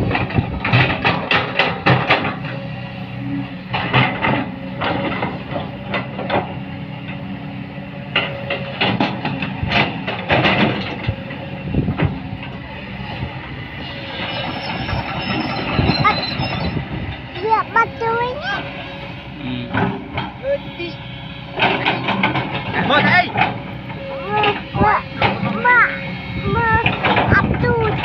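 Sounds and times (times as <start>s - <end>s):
metallic clanking of tracks: 0.0s - 2.6s, 8.0s - 11.2s, 13.8s - 18.9s, 19.8s - 28.0s
excavator engine under load: 0.0s - 28.0s
high squeal: 13.8s - 16.9s.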